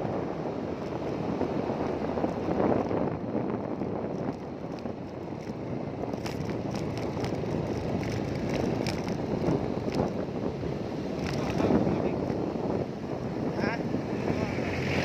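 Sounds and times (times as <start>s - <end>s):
low rumble of travel: 0.0s - 15.0s
wind buffeting microphone: 0.0s - 15.0s.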